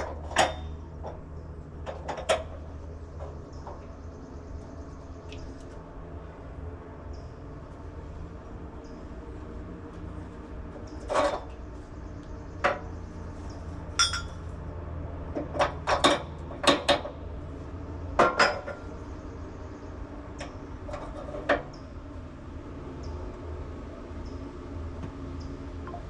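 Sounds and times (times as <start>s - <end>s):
steady low hum: 0.0s - 26.0s
metal clinking and clanking: 10.9s - 11.5s, 14.0s - 14.5s, 15.4s - 17.1s.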